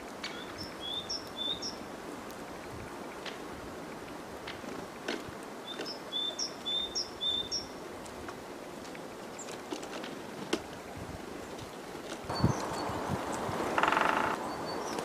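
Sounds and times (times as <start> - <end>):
outdoor background noise: 0.0 - 15.0
small bird chirping: 12.3 - 15.0.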